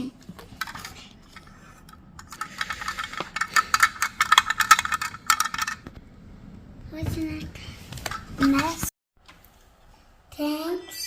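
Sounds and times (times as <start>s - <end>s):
hard objects rattling and clicking: 0.3s - 6.0s.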